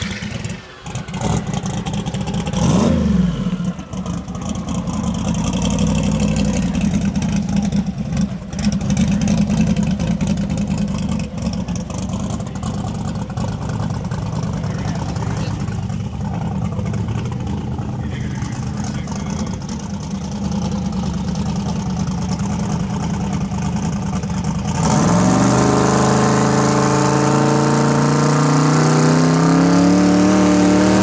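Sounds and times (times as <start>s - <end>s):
car engine low rumble: 0.0s - 31.0s
car engine revving: 0.0s - 31.0s.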